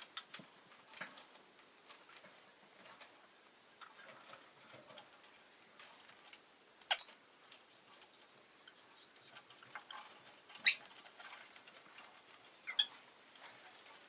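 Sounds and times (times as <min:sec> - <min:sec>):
lovebird high-pitched calls: 0:06.9 - 0:07.2, 0:10.6 - 0:10.9, 0:12.6 - 0:12.9.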